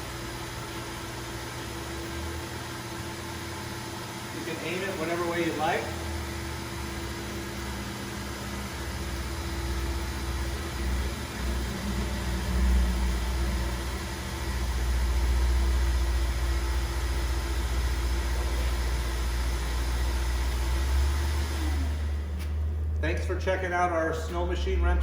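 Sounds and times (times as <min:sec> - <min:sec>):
snow machine blower hum: 0:00.0 - 0:25.0
low rumble: 0:21.0 - 0:25.0.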